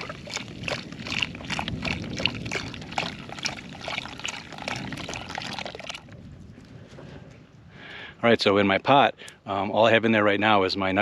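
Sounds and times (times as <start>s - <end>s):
liquid pouring into a pot: 0.0s - 6.2s.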